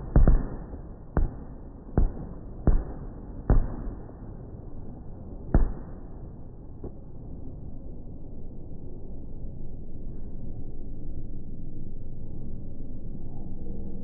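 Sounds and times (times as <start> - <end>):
fireworks bangs with rumbling tail: 0.0 - 4.2, 5.5 - 6.1.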